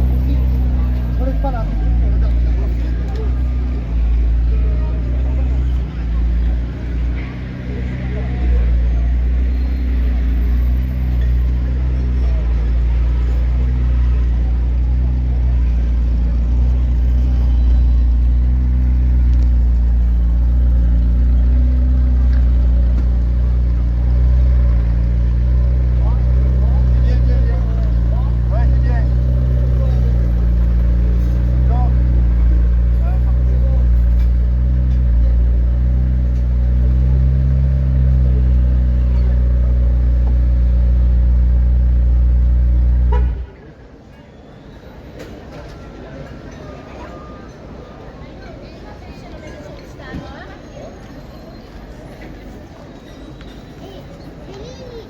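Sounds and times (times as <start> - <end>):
car engine droning: 0.0 - 43.7.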